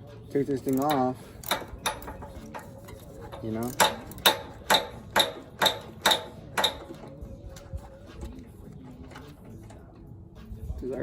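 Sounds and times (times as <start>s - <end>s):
ratchet clicking: 0.6s - 7.0s.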